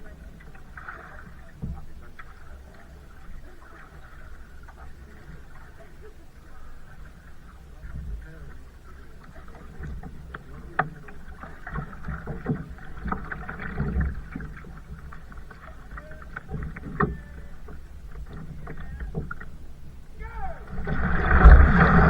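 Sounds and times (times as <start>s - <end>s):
paddle splashing in water: 0.0s - 22.0s
low rumble: 19.9s - 22.0s.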